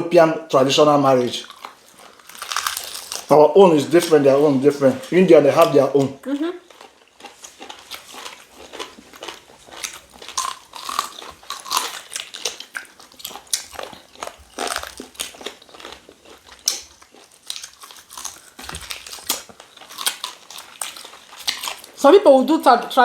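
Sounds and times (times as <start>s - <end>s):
wet chewing and crunching: 1.3s - 22.1s.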